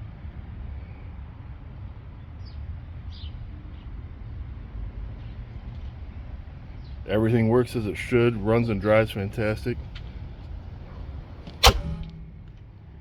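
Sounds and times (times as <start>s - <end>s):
low rumble: 11.5s - 13.0s.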